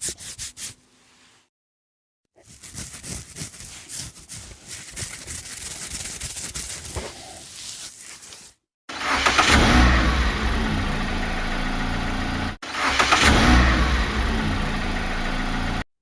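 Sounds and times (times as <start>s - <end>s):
car engine starting and revving: 8.9s - 15.9s.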